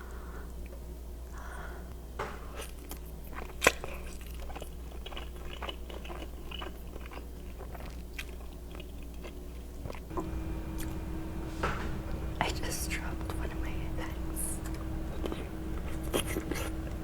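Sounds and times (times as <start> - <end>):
crunchy chewing: 2.5 - 11.0, 14.0 - 17.0.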